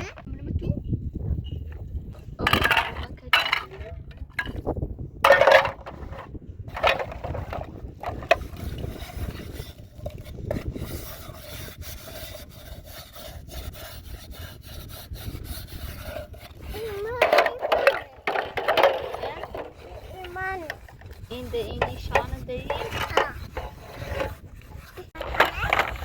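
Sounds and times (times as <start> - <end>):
rubbing and scraping: 0.0 - 26.0.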